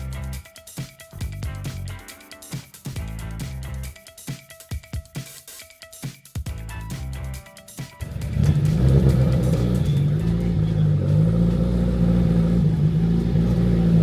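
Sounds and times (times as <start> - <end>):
car engine running: 8.0 - 14.0.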